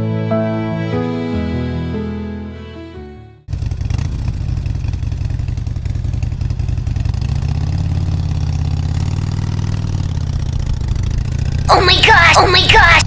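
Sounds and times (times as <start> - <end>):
engine running: 3.5 - 13.0.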